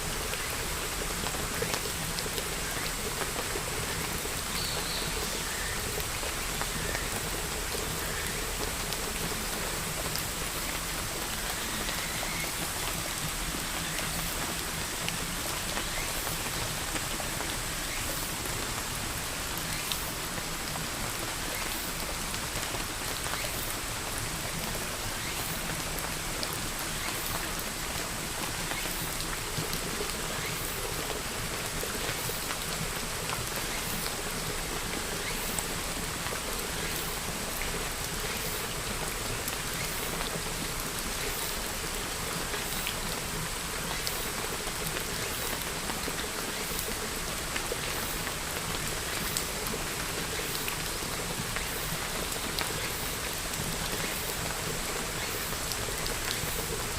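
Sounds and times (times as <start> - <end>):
steady rain hiss: 0.0 - 56.9.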